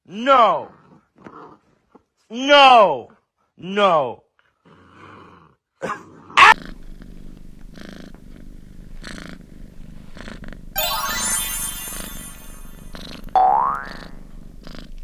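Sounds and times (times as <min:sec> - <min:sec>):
cat purring: 0:06.4 - 0:10.8, 0:12.3 - 0:15.0.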